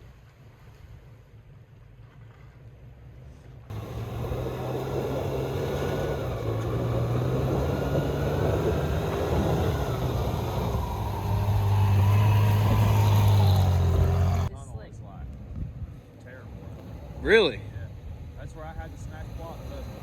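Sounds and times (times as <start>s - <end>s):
faint wind noise: 3.2s - 20.0s
engine droning under throttle: 3.7s - 14.5s, 16.1s - 20.0s.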